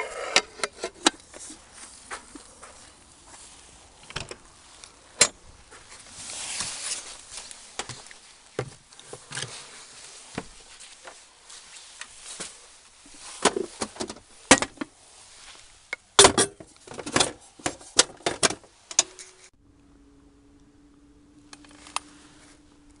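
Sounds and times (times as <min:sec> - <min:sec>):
objects clattering and knocking: 0:13.2 - 0:14.9, 0:16.2 - 0:19.5.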